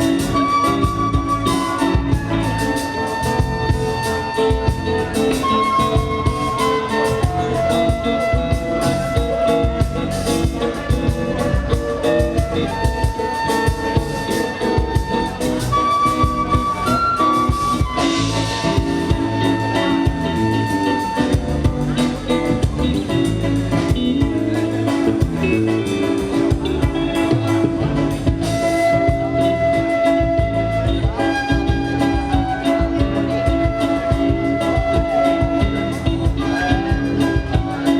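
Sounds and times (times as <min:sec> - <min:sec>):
bass: 0:00.0 - 0:37.9
drums: 0:00.0 - 0:37.9
live band music: 0:00.0 - 0:37.9.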